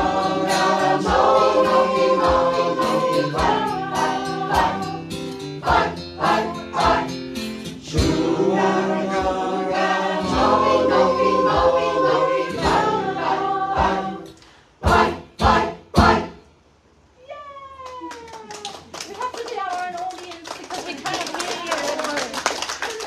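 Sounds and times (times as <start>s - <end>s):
choir chanting: 0.0s - 5.0s, 5.6s - 7.2s, 7.8s - 16.4s
percussive beat: 0.0s - 9.4s, 14.8s - 16.4s.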